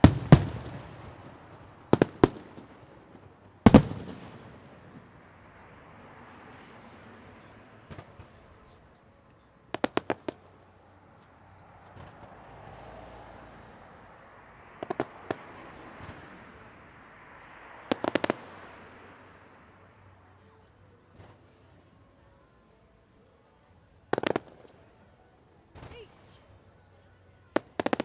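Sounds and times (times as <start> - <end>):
faint fireworks pops: 0.0 - 5.2, 7.8 - 10.6, 11.2 - 12.5, 14.7 - 16.6, 17.3 - 18.8, 21.1 - 21.8, 24.1 - 25.1, 27.5 - 28.0
fireworks bangs: 0.0 - 5.2, 14.8 - 16.3, 17.9 - 18.6
low background rush: 0.0 - 28.0.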